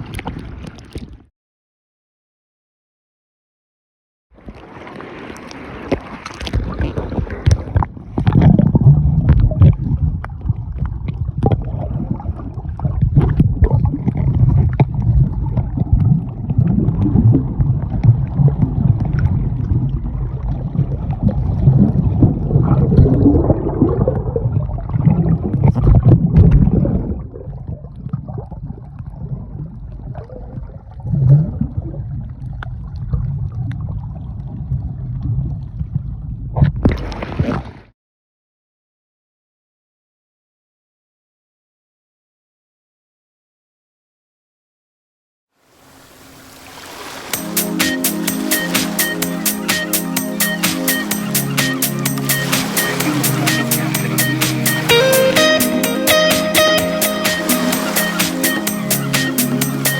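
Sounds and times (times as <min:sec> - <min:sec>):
hull knocking on waves: 0:47.4 - 0:58.6.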